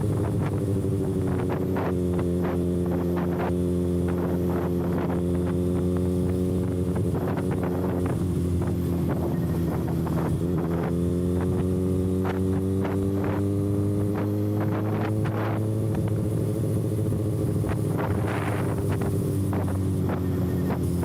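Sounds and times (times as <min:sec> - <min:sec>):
motorcycle engine cruising: 0:00.0 - 0:21.0.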